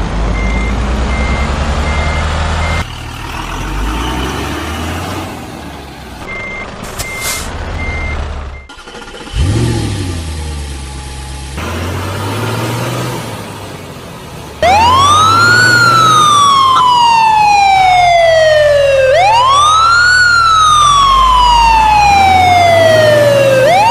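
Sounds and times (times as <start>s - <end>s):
loud siren rising and falling: 14.6s - 23.9s.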